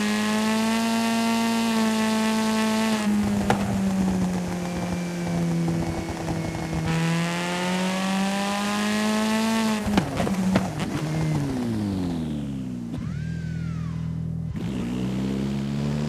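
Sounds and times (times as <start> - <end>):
video game car engine: 0.0 - 16.0
crash impacts: 9.8 - 12.2.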